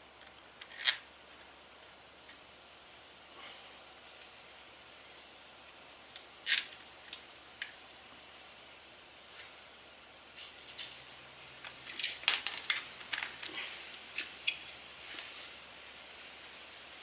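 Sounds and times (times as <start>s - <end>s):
metal tools clinking and rattling: 11.8s - 13.6s.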